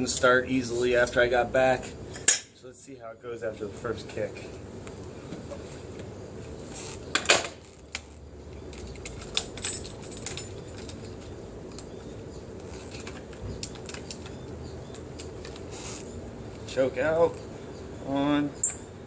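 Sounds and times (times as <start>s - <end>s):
keys jangling: 8.8s - 11.3s.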